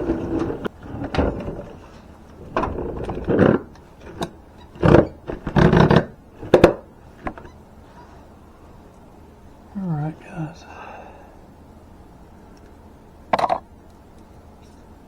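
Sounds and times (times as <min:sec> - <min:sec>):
bumps and scrapes of handling: 0:00.0 - 0:08.2.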